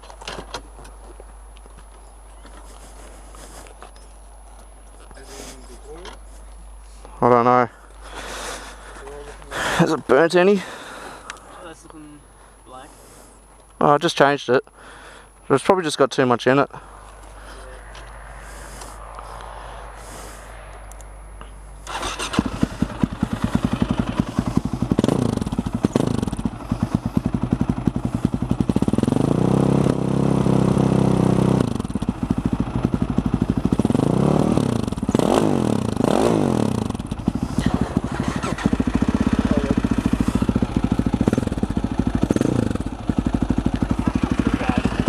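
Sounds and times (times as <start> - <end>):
motorcycle engine revving: 17.0 - 45.0.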